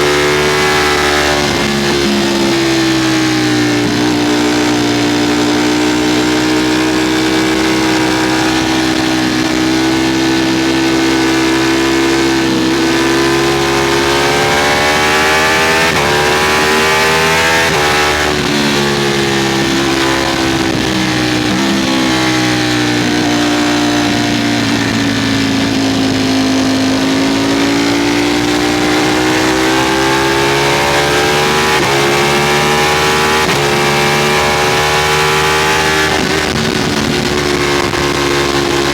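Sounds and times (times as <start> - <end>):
gear changes: 0.0 - 38.9
motorcycle engine at speed: 0.0 - 38.9
wind rushing over microphone: 35.7 - 38.9.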